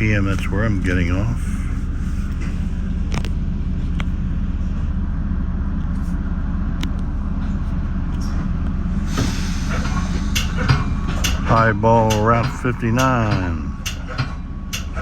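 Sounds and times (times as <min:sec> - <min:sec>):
train interior rumble: 0:00.0 - 0:15.0
hiss: 0:09.0 - 0:11.4.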